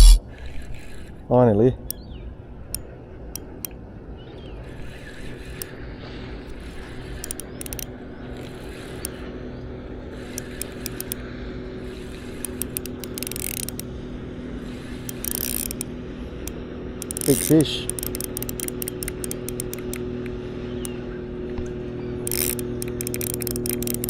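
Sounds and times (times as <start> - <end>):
reel ticking: 0.0 - 21.1, 21.7 - 24.0
fishing reel gears whirring: 0.0 - 24.0.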